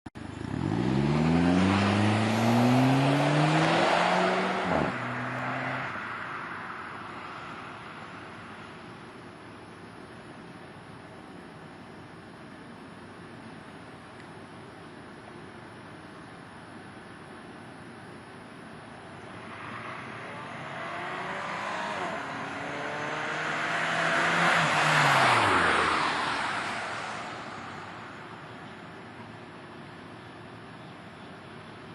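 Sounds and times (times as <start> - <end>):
car exhaust accelerating: 0.2 - 6.4, 19.0 - 28.9.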